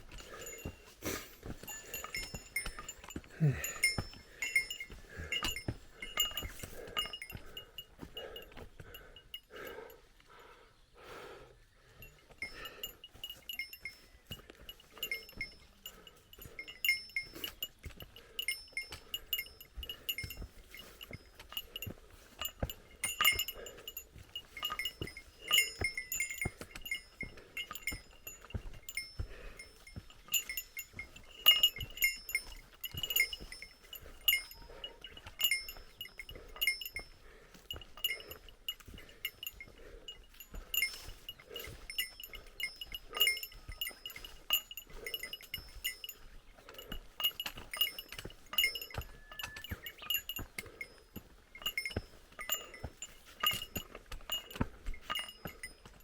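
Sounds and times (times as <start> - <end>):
small metal bell jingling: 0.0 - 10.5, 11.9 - 56.0
soft footfalls on trail: 0.0 - 56.0.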